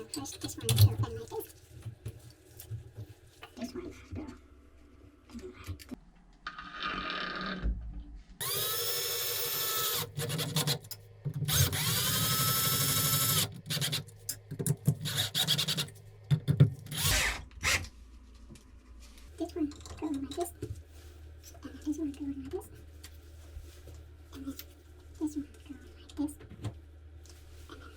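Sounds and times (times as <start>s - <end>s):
cordless drill whine: 8.4s - 10.2s, 11.5s - 13.5s, 17.0s - 17.8s.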